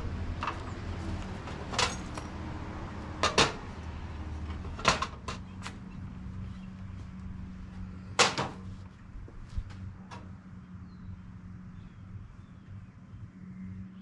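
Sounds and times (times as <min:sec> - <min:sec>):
metal parts clacking on workbench: 0:01.4 - 0:02.3, 0:03.2 - 0:03.6.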